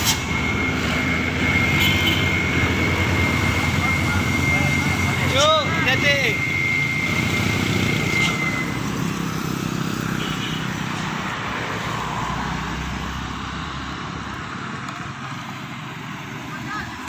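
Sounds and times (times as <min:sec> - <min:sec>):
diesel truck engine passing: 0:00.0 - 0:17.0.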